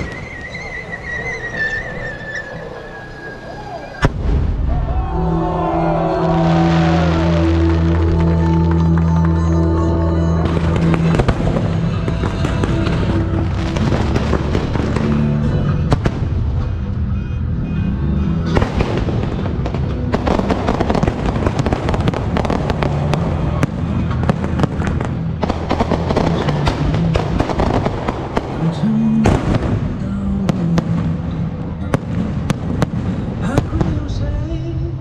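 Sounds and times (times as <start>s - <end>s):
fireworks bangs and crackling: 0.0s - 2.1s, 4.0s - 5.1s, 10.4s - 17.0s, 18.4s - 34.7s
song playing: 5.1s - 35.0s.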